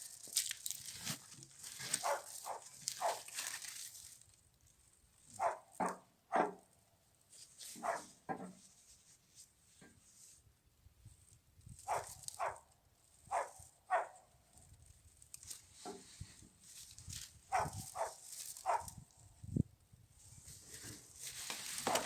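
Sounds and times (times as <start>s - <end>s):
dog barking: 2.0s - 3.3s, 5.4s - 6.6s, 7.8s - 8.2s, 11.9s - 12.6s, 13.3s - 14.2s, 17.5s - 18.9s.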